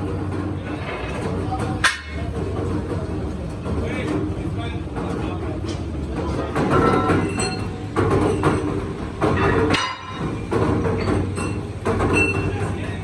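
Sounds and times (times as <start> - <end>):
machinery clanking and rattling: 0.0 - 13.0
sharp metal knocks: 9.3 - 10.3.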